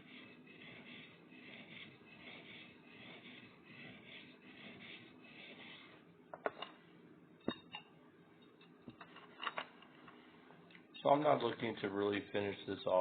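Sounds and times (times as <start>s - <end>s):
knife rubbing on sharpening stone: 0.0s - 6.0s.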